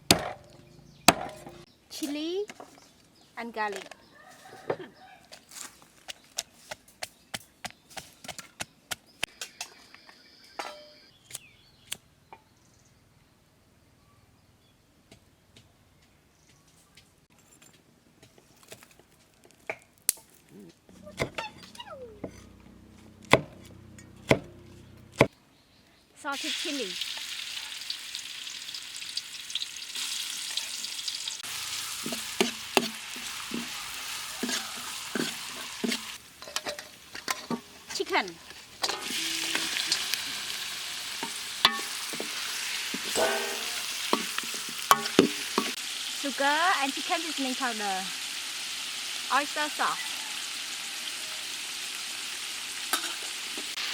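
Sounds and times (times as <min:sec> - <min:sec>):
food sizzling in oil: 0:26.3 - 0:53.9
utensil knocking against pan: 0:43.2 - 0:45.8.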